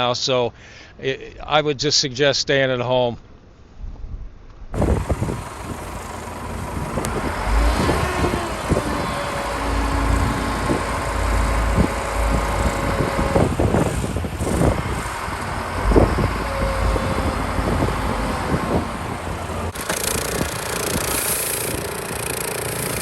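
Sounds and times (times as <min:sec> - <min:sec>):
vehicles rumbling on street: 0:04.8 - 0:23.0.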